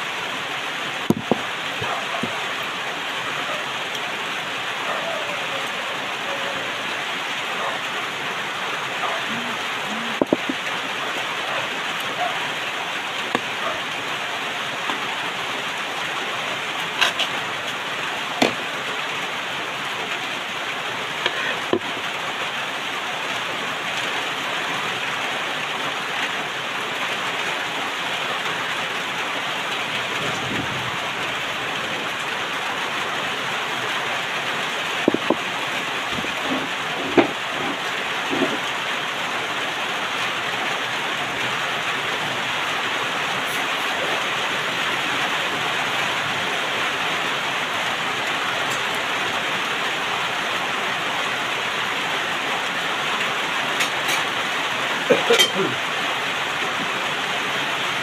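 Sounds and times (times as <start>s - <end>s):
rain on a roof: 0.0s - 58.0s
tableware clinking: 55.2s - 55.6s.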